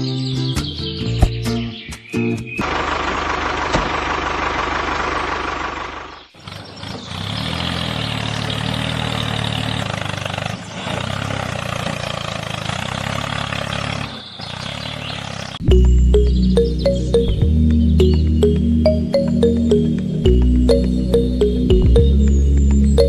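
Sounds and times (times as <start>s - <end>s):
engine idling: 2.6s - 6.5s.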